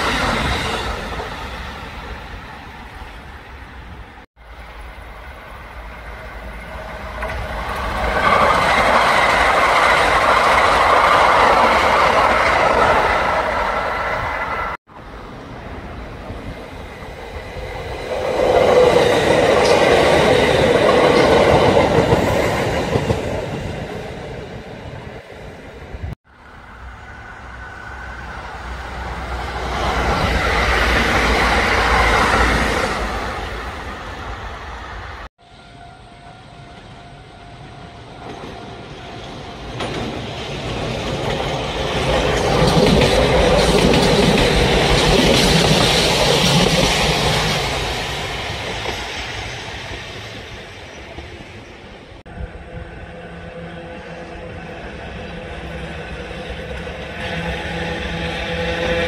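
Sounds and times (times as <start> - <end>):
electric train passing: 0.0 - 59.0
wheels clacking over rail joints: 6.8 - 14.8, 38.2 - 51.7.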